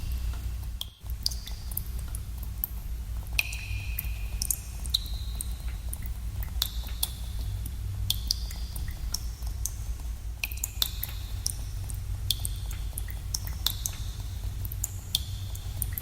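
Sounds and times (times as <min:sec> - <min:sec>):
steady low rumble: 0:00.0 - 0:16.0
water drops plinking into pools: 0:03.4 - 0:07.2, 0:10.4 - 0:16.0.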